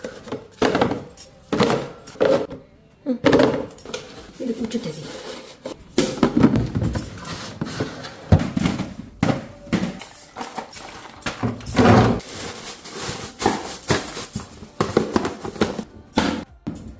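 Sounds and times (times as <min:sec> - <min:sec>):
plastic containers clattering: 0:00.0 - 0:16.9
vegetables being handled: 0:10.2 - 0:15.9.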